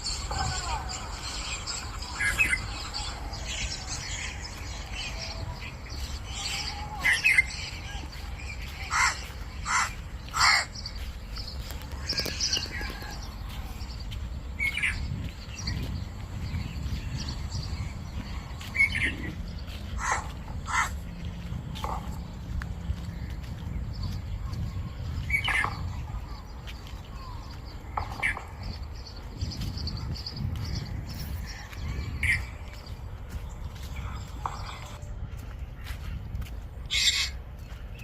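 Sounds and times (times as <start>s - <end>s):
forest birds calling: 0.0s - 38.0s
steady low rumble: 0.0s - 38.0s.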